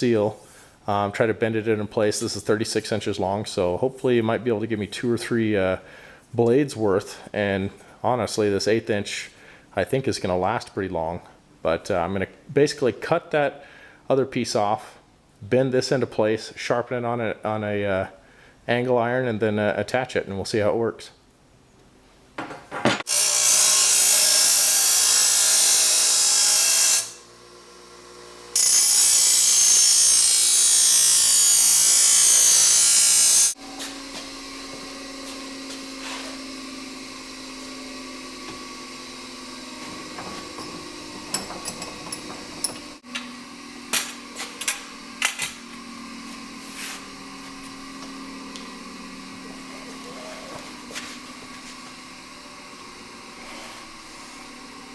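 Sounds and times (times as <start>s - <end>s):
power tool cutting steel: 23.1s - 54.9s.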